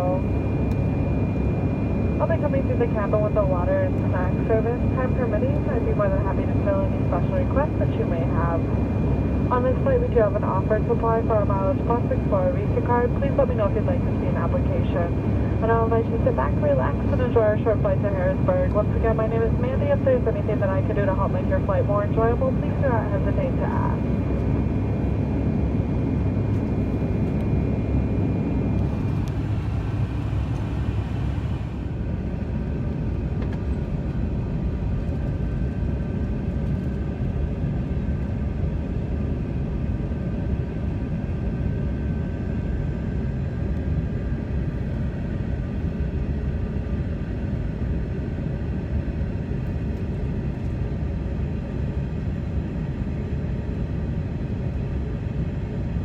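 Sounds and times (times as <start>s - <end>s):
faint steady tones: 0.0s - 27.6s
airliner cabin engine rumble: 0.0s - 56.0s.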